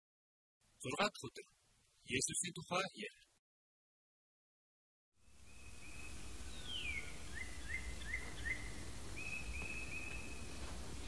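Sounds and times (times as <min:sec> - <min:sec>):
outdoor background noise: 0:05.2 - 0:11.0
birds singing: 0:05.4 - 0:11.0.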